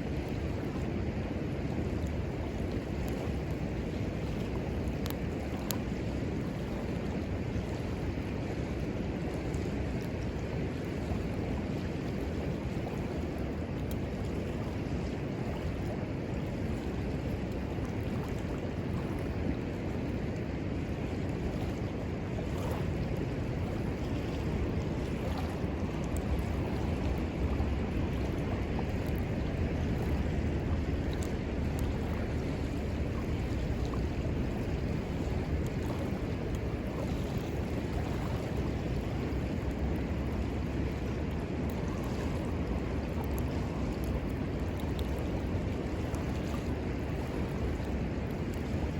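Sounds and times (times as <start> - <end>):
river rushing: 12.2 - 48.9
campfire crackles: 21.1 - 38.0.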